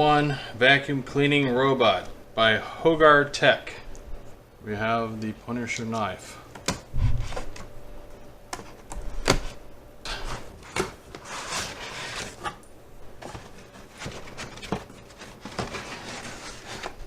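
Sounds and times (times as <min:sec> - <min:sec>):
cardboard box being opened: 0:10.1 - 0:12.6, 0:13.2 - 0:17.0.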